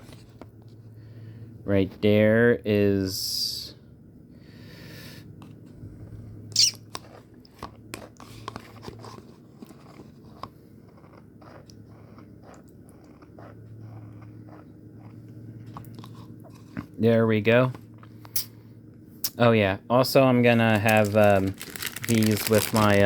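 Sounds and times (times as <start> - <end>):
steady low hum: 0.0 - 23.0
utensil and chips clicking: 20.5 - 23.0.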